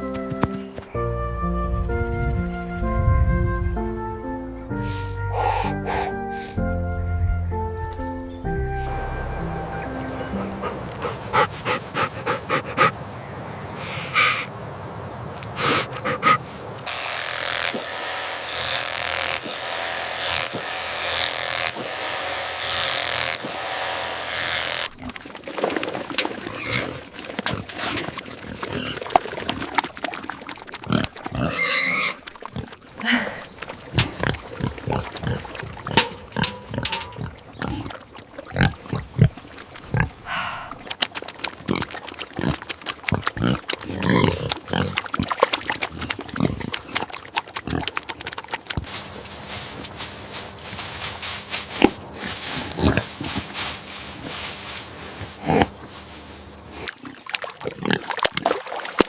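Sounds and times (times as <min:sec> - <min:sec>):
pigs grunting and snorting: 0:02.8 - 0:13.2, 0:13.8 - 0:14.5, 0:15.6 - 0:48.9, 0:51.7 - 0:53.6, 0:55.2 - 0:55.9, 0:56.6 - 0:58.6
pig squealing: 0:03.4 - 0:06.8, 0:07.5 - 0:12.9, 0:26.5 - 0:27.0, 0:30.9 - 0:32.7, 0:41.7 - 0:45.3.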